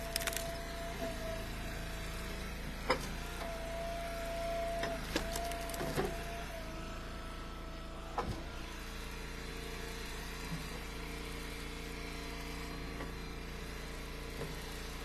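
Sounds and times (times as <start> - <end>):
engine idling: 4.9 - 7.8.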